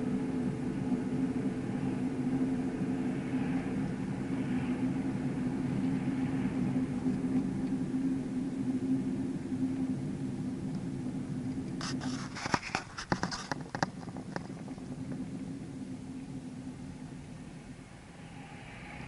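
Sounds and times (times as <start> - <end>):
vehicle engine running: 0.0 - 19.0
sharp clicks and cracks: 12.5 - 14.8.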